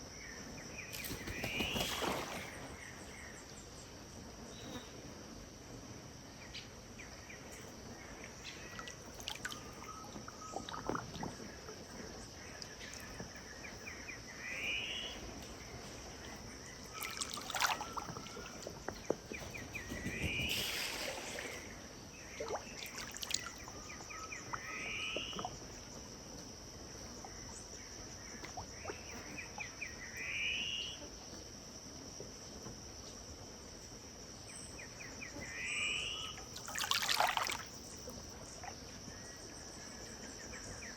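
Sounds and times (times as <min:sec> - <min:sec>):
high insect drone: 0:00.2 - 0:03.9, 0:04.5 - 0:40.9
brief water splashes: 0:00.9 - 0:03.1, 0:16.9 - 0:25.5, 0:36.6 - 0:37.8
river water flowing: 0:16.9 - 0:19.5, 0:20.2 - 0:21.8, 0:22.4 - 0:23.8, 0:36.5 - 0:37.8.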